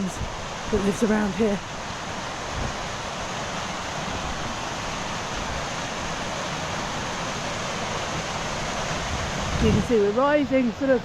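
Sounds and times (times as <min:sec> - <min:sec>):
wind buffeting microphone: 0:02.3 - 0:11.0.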